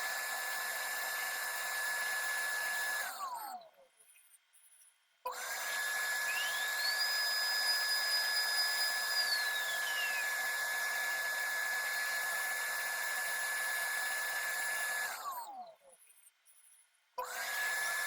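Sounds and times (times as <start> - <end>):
circuit board plotter whining: 5.4 - 15.6.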